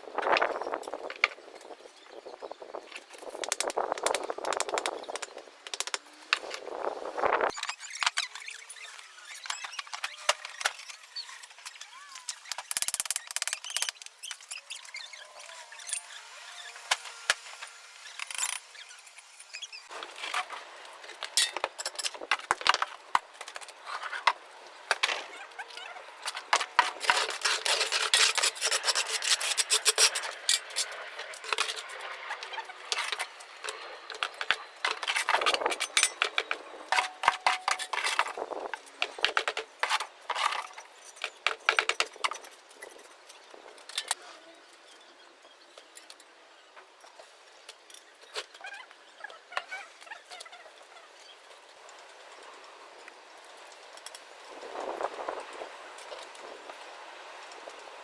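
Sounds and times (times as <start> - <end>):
tools scraping on masonry: 25.0 - 43.0.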